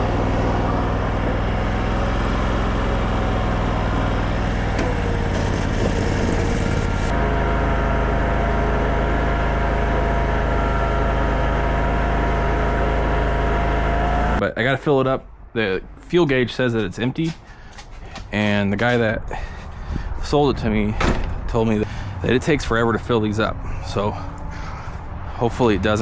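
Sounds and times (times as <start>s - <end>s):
skid steer engine running: 0.0s - 14.4s, 21.8s - 26.0s.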